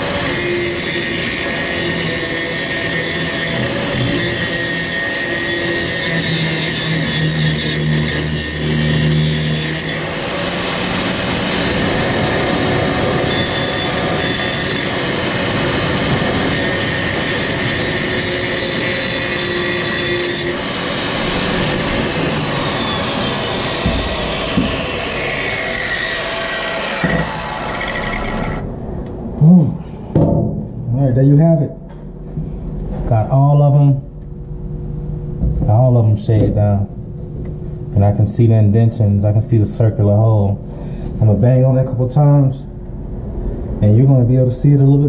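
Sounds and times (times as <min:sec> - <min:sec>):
power grinder grinding metal: 0:00.0 - 0:28.7.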